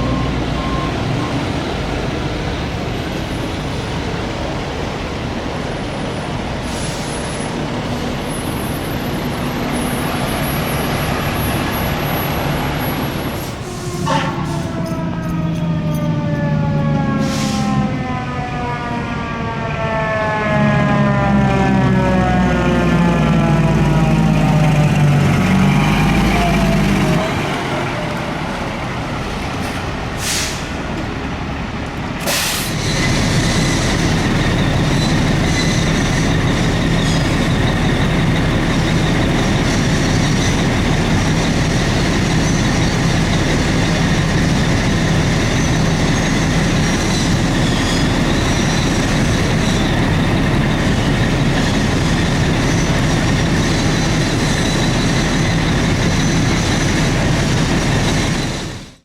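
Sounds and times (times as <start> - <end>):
diesel engine humming: 0.0 - 59.0
air brake hisses: 6.6 - 7.3, 17.2 - 17.6, 30.2 - 30.8, 32.2 - 33.9.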